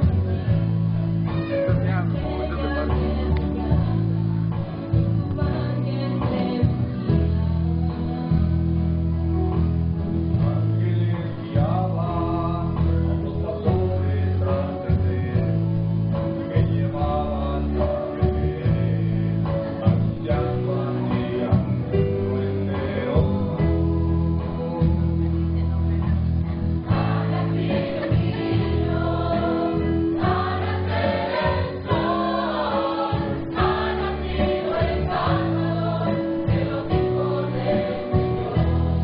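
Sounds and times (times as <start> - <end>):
low bass notes: 0.0 - 39.0
choir singing: 26.8 - 39.0.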